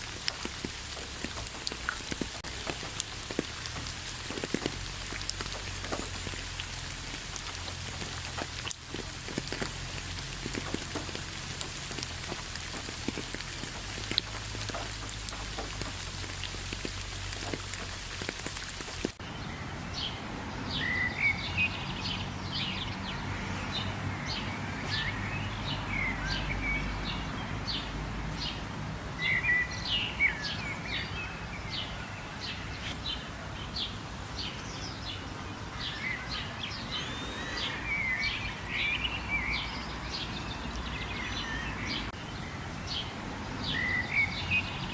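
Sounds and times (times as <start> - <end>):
rain hissing: 0.0 - 19.2
birds chirping: 0.0 - 28.6, 29.2 - 44.9.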